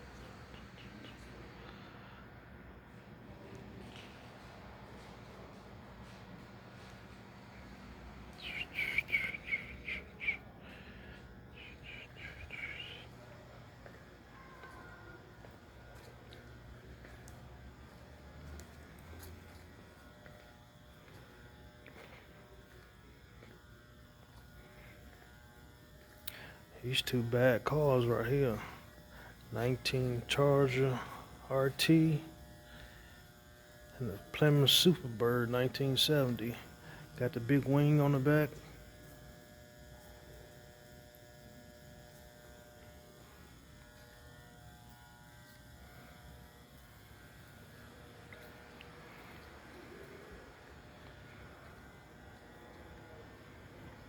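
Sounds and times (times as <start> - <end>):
low hum and light buzz: 0.0 - 54.0.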